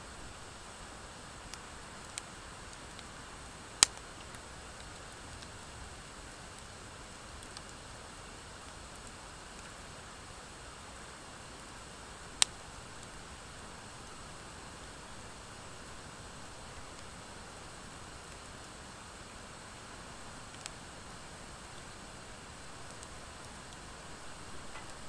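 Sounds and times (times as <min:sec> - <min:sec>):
campfire hissing and crackling: 0:00.0 - 0:25.0
sharp fire pops: 0:03.7 - 0:05.6.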